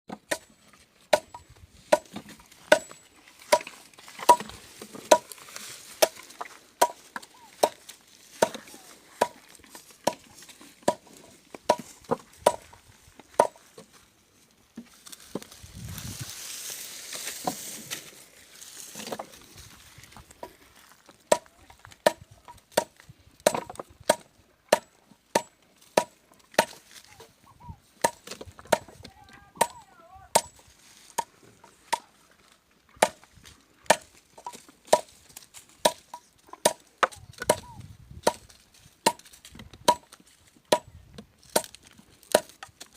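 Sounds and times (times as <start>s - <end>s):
calves chewing sugarcane: 0.6s - 42.9s.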